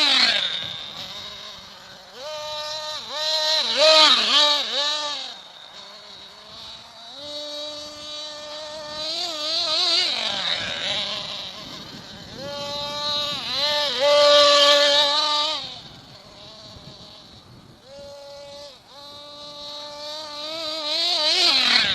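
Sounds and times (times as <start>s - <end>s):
rc truck engine revving: 0.0s - 21.9s.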